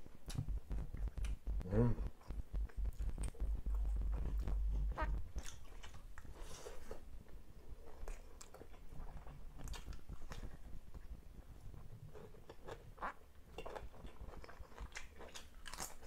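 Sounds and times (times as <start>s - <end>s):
low rumble: 0.3s - 6.0s
chewing and crunching: 2.2s - 16.0s.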